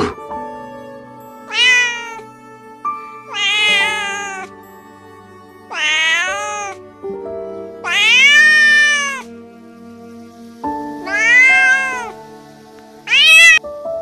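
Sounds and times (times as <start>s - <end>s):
slow piano music: 0.0s - 14.0s
cat meowing: 1.5s - 2.3s, 3.3s - 4.5s, 5.7s - 6.8s, 7.8s - 9.3s, 11.0s - 12.2s, 13.1s - 13.6s.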